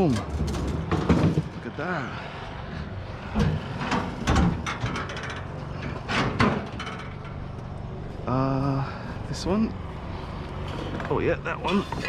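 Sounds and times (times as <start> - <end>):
knocks and clunks of hard objects: 0.0 - 1.7, 3.3 - 7.6
rattling clicks: 3.3 - 7.7.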